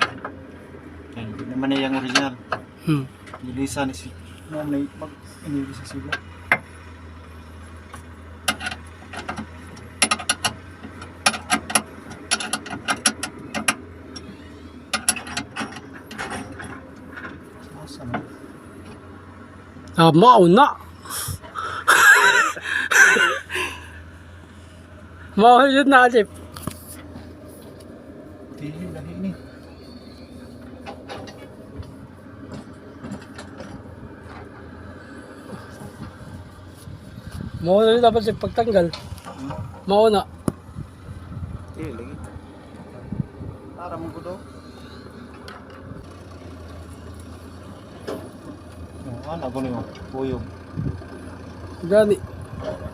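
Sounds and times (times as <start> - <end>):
low machine hum: 0.0 - 52.9
small clicks and light knocks: 7.8 - 19.0.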